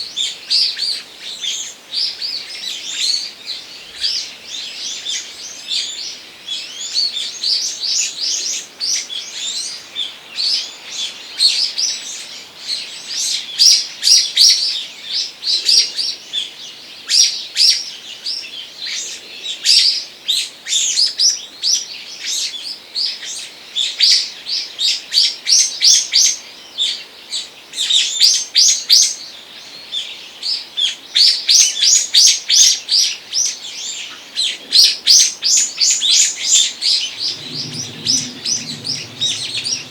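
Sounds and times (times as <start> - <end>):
songbirds chirping: 33.2 - 39.9.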